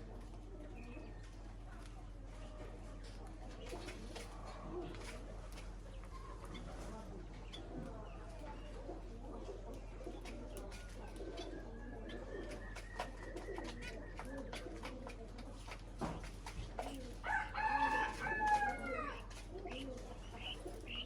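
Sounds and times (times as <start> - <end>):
birds cooing warbles: 0.0 - 21.0
beaks pecking at seed: 9.5 - 21.0.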